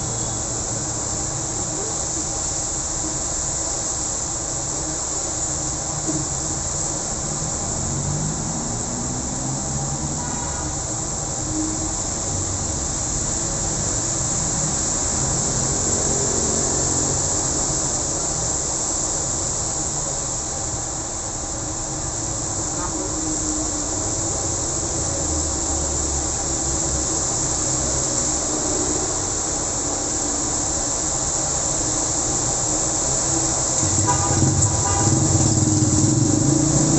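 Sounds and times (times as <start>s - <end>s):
road traffic rumble: 0.0s - 36.9s
rain pouring: 21.4s - 36.9s.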